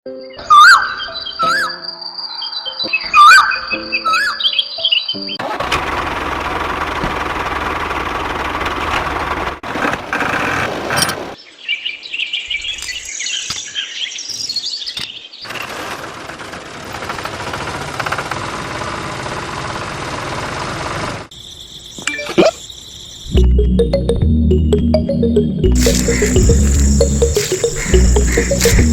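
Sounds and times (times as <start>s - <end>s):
birds chirping: 0.1s - 5.4s, 25.6s - 28.9s.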